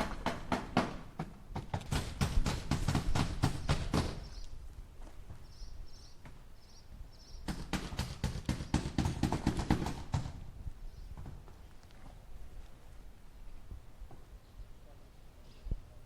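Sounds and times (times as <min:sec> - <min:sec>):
hammer driving nail into wood: 0:00.0 - 0:04.3, 0:07.5 - 0:10.4.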